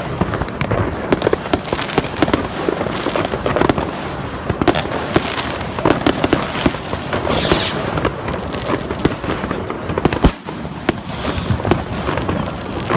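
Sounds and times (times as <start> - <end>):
fireworks crackling and banging: 0.0 - 12.9
firework hissing burst: 7.1 - 8.4, 10.3 - 11.9.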